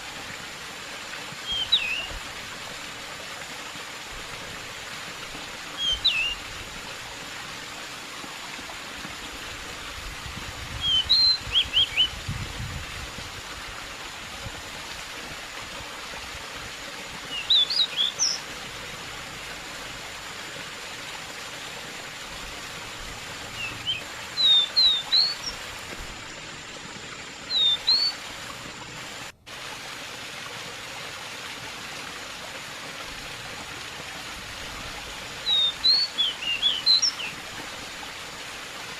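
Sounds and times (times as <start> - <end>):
flowing water: 0.0 - 38.9
bird chirping phrases: 23.6 - 25.6, 27.5 - 28.1, 35.5 - 37.3.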